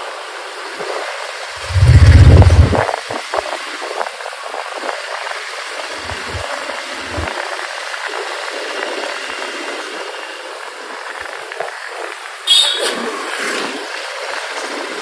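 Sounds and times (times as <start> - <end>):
low thumps: 1.6 - 3.1, 6.0 - 6.4
motorcycle road noise: 1.6 - 3.2, 5.9 - 8.0
rushing wind: 1.6 - 3.2, 6.0 - 7.3.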